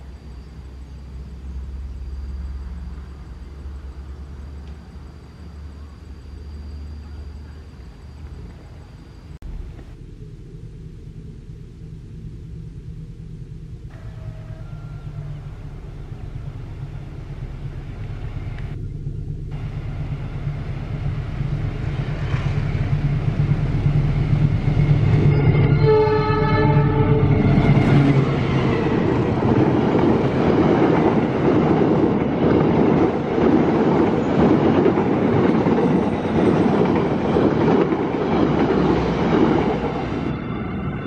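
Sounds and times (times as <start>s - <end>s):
locomotive engine running: 0.0s - 41.0s
train horn: 13.9s - 16.3s, 24.9s - 29.4s.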